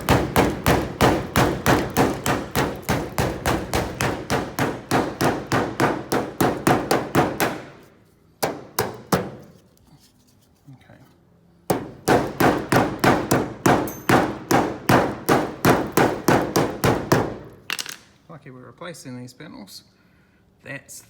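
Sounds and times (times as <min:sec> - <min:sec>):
hammer striking chisel on metal: 0:00.0 - 0:07.7, 0:11.7 - 0:17.4.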